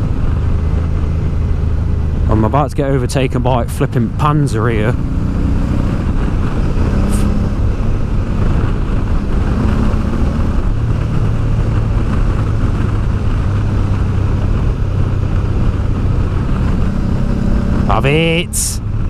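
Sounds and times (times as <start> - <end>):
motorcycle engine running: 0.0 - 19.0
wind rushing over microphone: 0.0 - 19.0.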